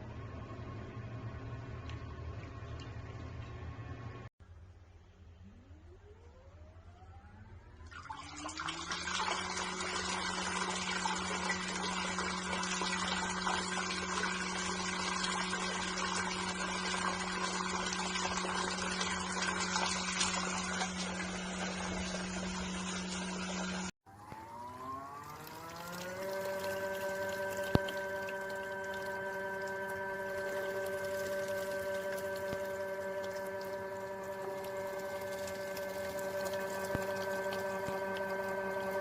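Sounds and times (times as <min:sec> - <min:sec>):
washing machine motor hum: 0:00.0 - 0:04.3, 0:05.6 - 0:39.0
motor spinning up whine: 0:05.4 - 0:39.0.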